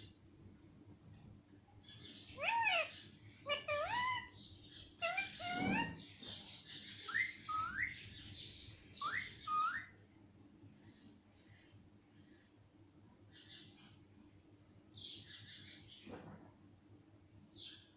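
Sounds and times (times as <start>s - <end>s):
parrot whistled calls: 7.1s - 8.0s, 9.0s - 9.9s.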